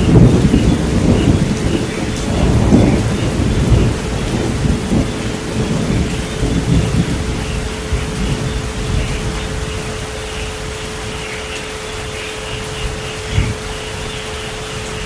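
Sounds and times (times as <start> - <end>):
low rolling thunder: 0.0 - 11.3
heavy rain: 0.0 - 15.0.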